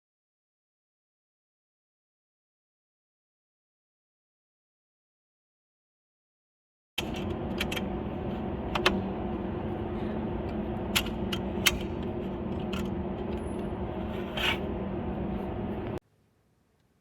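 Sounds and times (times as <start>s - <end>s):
sharp clicks and knocks: 7.0s - 8.0s, 8.7s - 9.0s, 10.5s - 13.7s
low mechanical hum: 7.0s - 17.0s.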